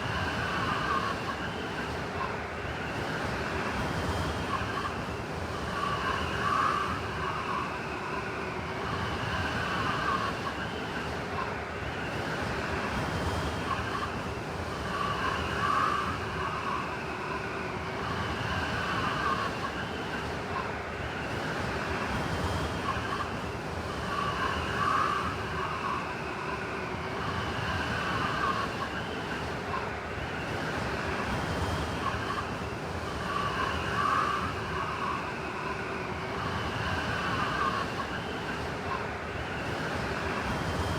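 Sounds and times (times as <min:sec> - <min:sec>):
blizzard wind howling: 0:11.8 - 0:40.9.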